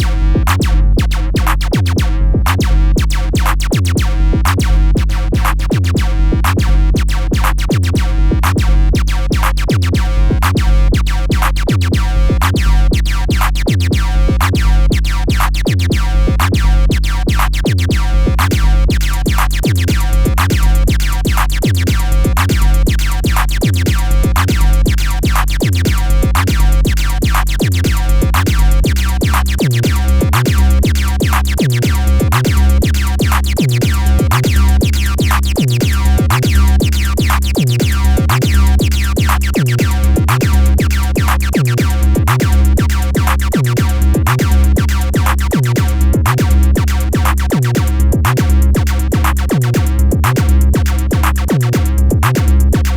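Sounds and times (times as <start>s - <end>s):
drum machine beat: 0.0s - 52.9s
pulsing bass line: 0.0s - 52.9s
electronic synthesizer music: 8.6s - 49.4s.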